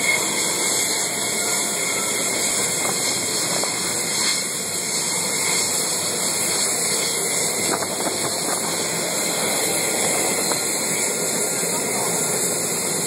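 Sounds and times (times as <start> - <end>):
jet engines hissing: 0.0 - 13.0.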